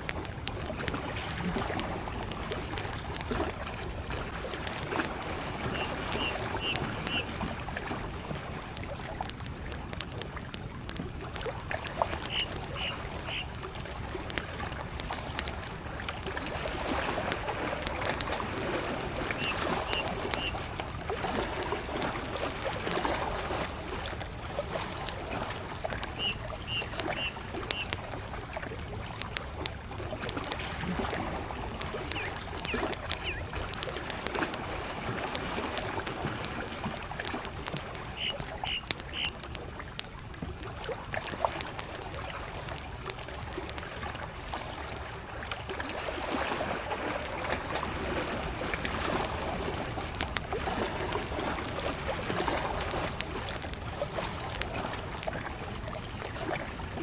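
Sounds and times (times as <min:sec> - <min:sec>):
campfire crackling and popping: 0:00.0 - 0:45.8, 0:46.8 - 0:57.0
lake waves lapping: 0:00.0 - 0:57.0
distant bird calling: 0:05.3 - 0:07.4, 0:11.8 - 0:13.7, 0:19.2 - 0:20.7, 0:26.0 - 0:28.0, 0:31.8 - 0:33.7, 0:37.9 - 0:39.4.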